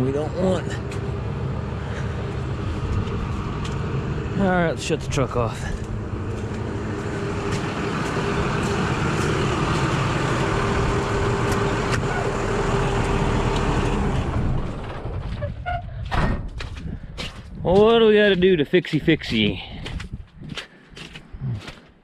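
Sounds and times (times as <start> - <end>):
truck engine shutting off: 0.0 - 16.8
truck engine running: 0.0 - 18.4.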